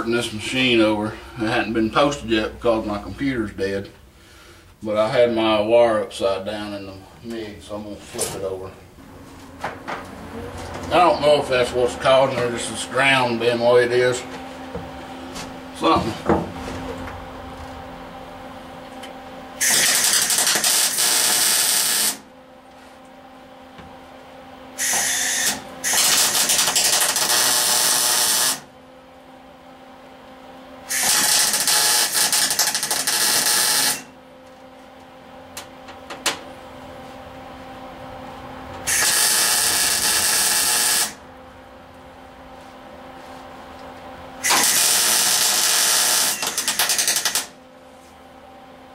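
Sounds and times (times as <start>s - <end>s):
steady welder hum: 0.0s - 48.9s
welding arc hissing crackle: 19.6s - 22.2s, 24.8s - 28.7s, 30.9s - 34.1s, 38.9s - 41.2s, 44.4s - 47.6s.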